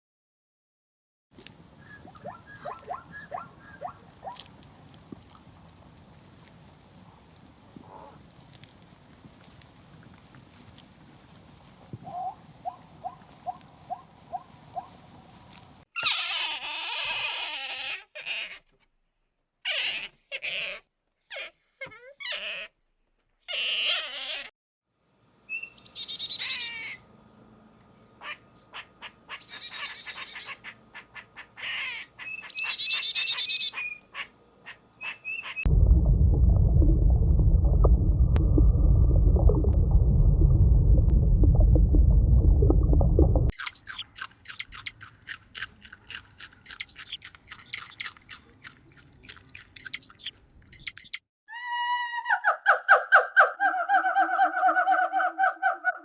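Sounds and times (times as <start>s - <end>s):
bird chirps and squawks: 1.8s - 4.4s, 43.5s - 44.9s, 46.7s - 48.1s, 49.8s - 51.2s
loud low rumble: 35.7s - 43.6s.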